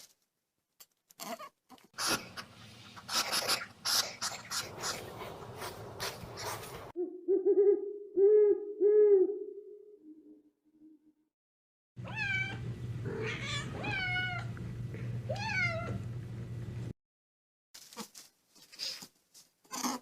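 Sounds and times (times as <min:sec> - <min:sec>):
scratchy rustling: 0:02.0 - 0:06.9.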